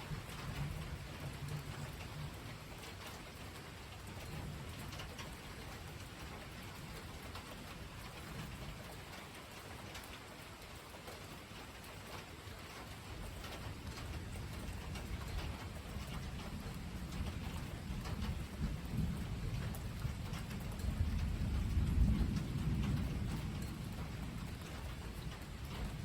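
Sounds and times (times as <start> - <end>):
steady rain falling: 0.0 - 26.0
distant thunder rumble: 13.7 - 26.0.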